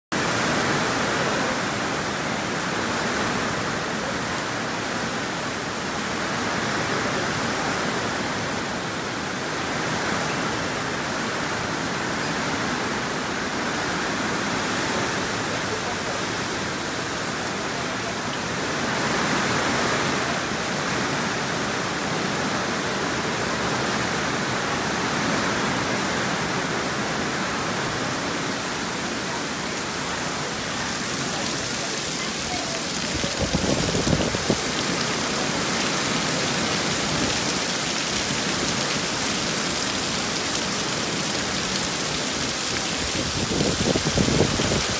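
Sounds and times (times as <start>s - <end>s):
heavy rain on paving: 0.1s - 44.9s
rain splashing: 0.1s - 44.9s.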